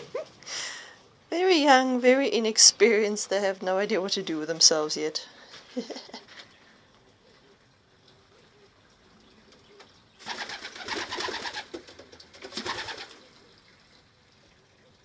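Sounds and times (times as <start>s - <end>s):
pigeon wings flapping: 10.2s - 13.2s.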